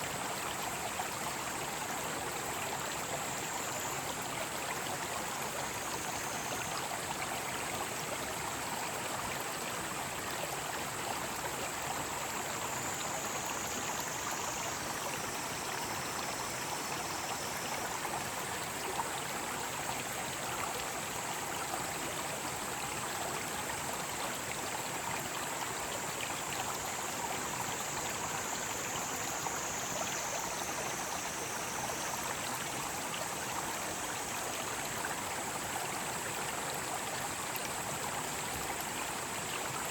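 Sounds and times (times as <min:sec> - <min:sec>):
stream flowing: 0:00.0 - 0:39.9
cicadas droning: 0:11.6 - 0:20.0, 0:24.2 - 0:39.9.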